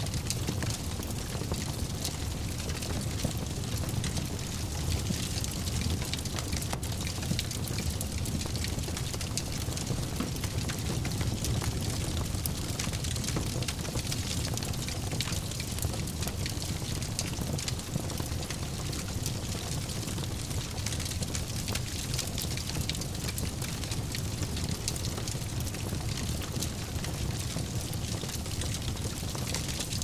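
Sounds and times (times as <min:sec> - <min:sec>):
low rumble of flames: 0:00.0 - 0:30.0
fire pops and snaps: 0:04.0 - 0:16.6.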